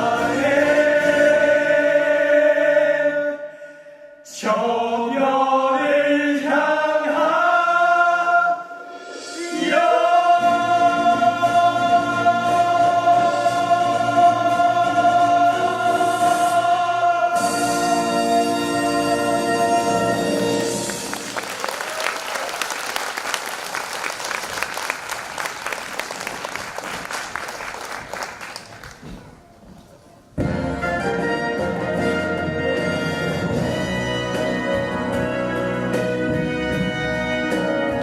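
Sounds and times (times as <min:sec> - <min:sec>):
musical accompaniment: 0:00.0 - 0:02.6, 0:08.6 - 0:21.6, 0:30.4 - 0:38.0
group of voices singing: 0:00.0 - 0:21.2.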